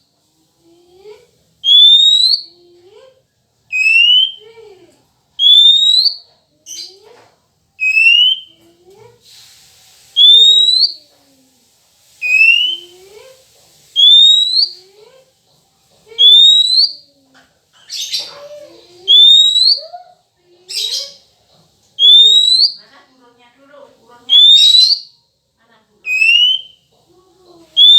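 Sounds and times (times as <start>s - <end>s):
rising whistle notes: 12.2s - 12.8s, 26.1s - 26.7s.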